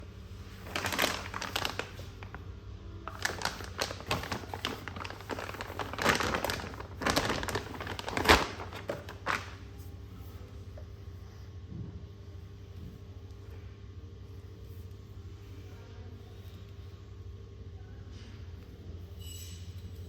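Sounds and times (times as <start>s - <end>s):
low steady hum: 0.0s - 20.0s
crinkling and rustling: 0.4s - 10.8s.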